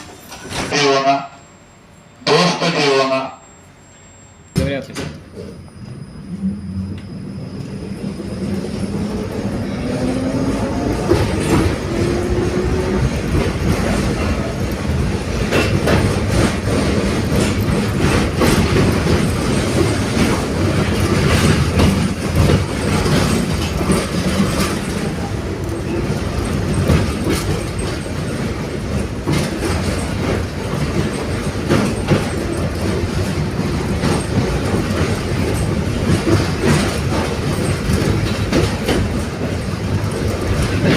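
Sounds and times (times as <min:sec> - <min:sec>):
tram rumbling along track: 0:00.0 - 0:40.9
wheels clicking over rail joints: 0:08.5 - 0:40.9.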